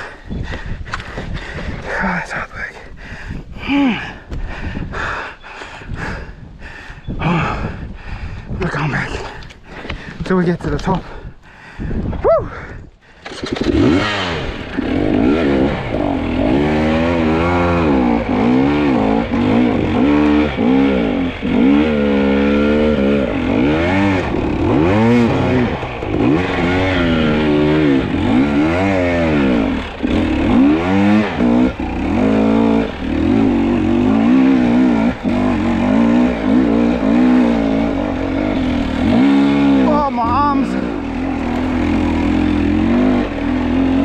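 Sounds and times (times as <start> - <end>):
dirt bike engine revving: 13.2 - 44.0.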